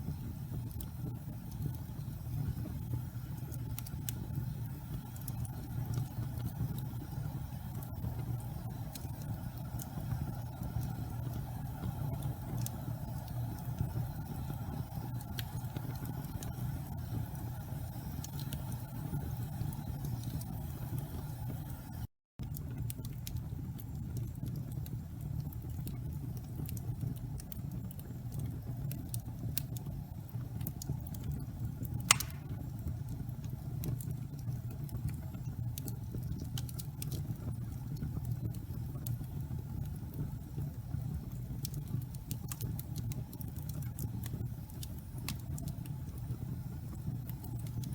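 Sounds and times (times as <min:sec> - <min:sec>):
fire crackles: 0:00.0 - 0:47.9
wood fire burning: 0:00.0 - 0:47.9
sharp pop of fire: 0:32.1 - 0:32.6.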